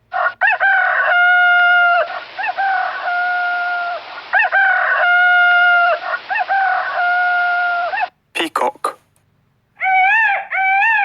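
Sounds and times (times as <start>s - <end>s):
rooster crowing: 0.1s - 8.1s, 9.8s - 11.0s.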